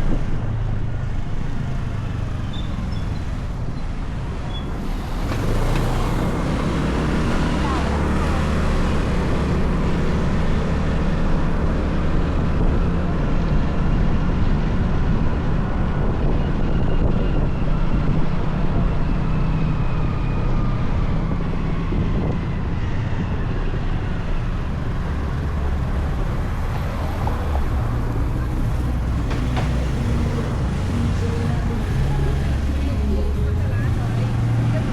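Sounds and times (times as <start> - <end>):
road noise: 0.0 - 34.9
motorcycle engine running: 24.0 - 34.9.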